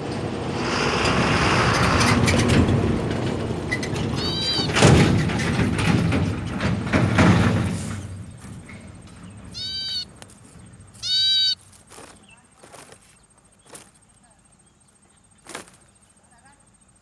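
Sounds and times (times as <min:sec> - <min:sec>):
loud rumbling: 0:00.0 - 0:11.5
knocks: 0:02.5 - 0:10.0
high-pitched bird calls: 0:04.1 - 0:05.0, 0:09.2 - 0:10.2, 0:10.9 - 0:12.4.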